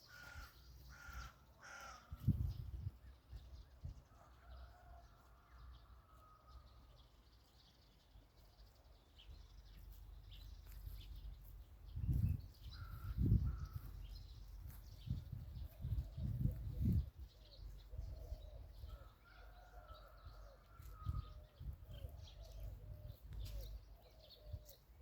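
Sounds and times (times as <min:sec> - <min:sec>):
crow cawing: 0:00.1 - 0:02.2
bird calls: 0:06.0 - 0:25.0.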